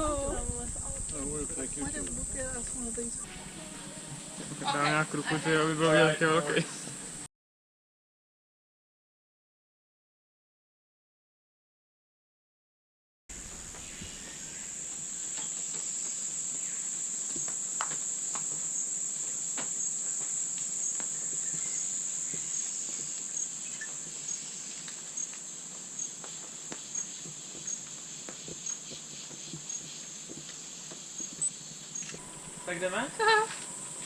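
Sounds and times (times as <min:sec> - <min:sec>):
insects droning: 0:00.0 - 0:07.3, 0:13.3 - 0:34.0.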